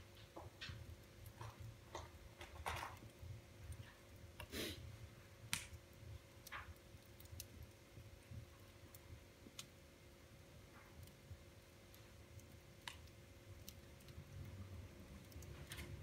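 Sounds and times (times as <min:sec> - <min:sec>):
wood fire crackling: 0:00.0 - 0:16.0
sharp fire pops: 0:05.5 - 0:05.8.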